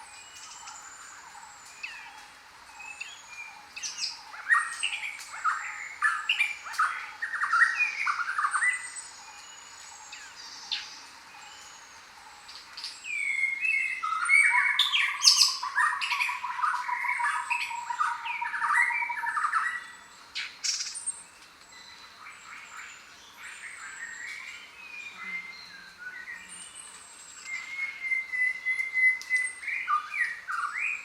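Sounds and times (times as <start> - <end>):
jungle birds squawking and chirping: 0.0 - 31.0.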